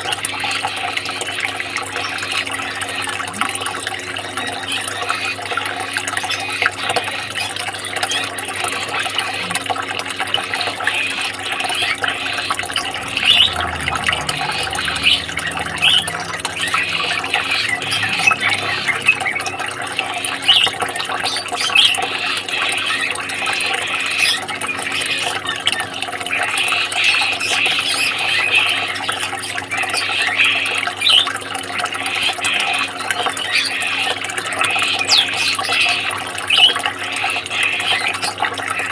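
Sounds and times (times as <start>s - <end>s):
running water: 0.0s - 38.9s
small birds chirping: 11.0s - 28.9s.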